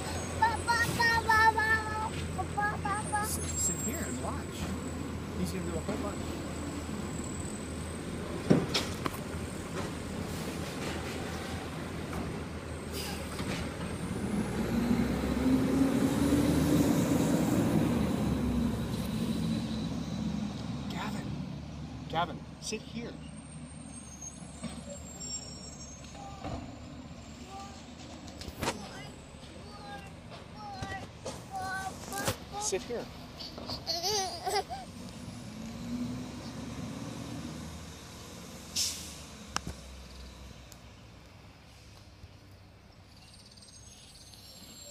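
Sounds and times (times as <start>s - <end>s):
garbage truck engine rumbling: 0.0s - 22.6s
garbage truck engine revving: 11.6s - 21.6s
air brake hiss: 12.8s - 13.4s, 38.7s - 39.4s.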